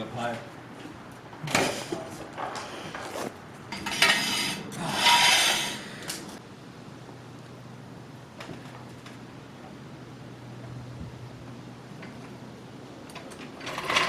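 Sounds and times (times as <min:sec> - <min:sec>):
metal tools clinking and scraping: 0:03.7 - 0:05.8.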